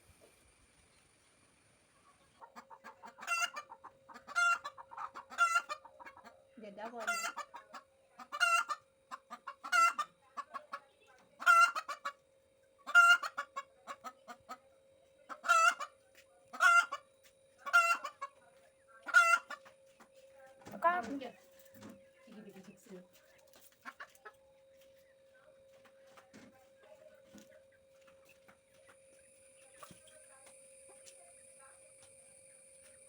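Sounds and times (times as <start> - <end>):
hens clucking: 2.0 - 25.1.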